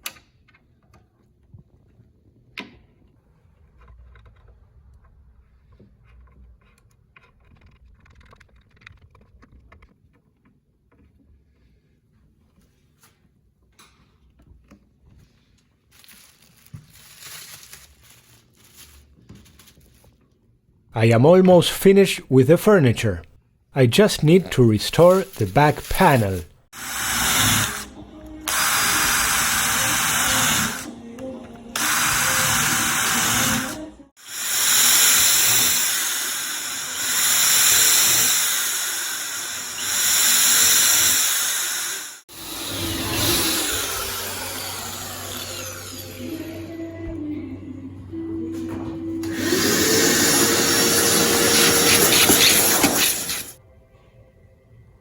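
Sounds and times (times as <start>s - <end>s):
rustling and scraping: 15.1s - 20.4s
spray gun hissing: 42.3s - 46.3s, 49.3s - 53.6s.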